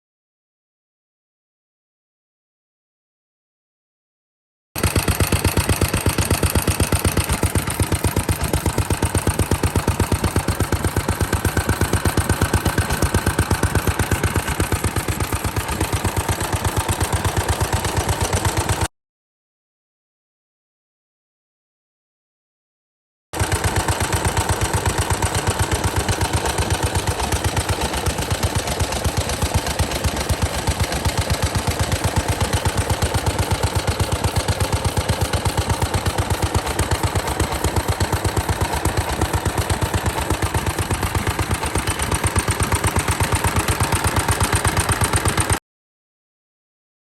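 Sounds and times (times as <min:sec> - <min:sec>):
single-cylinder engine running: 0:04.8 - 0:18.9, 0:23.4 - 0:45.6.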